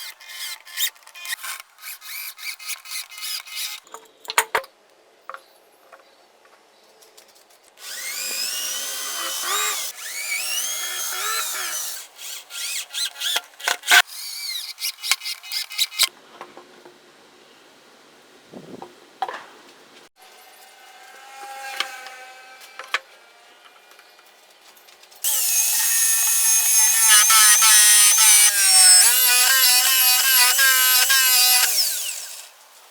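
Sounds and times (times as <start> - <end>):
electric drill running in bursts: 7.8 - 11.9, 25.2 - 32.5.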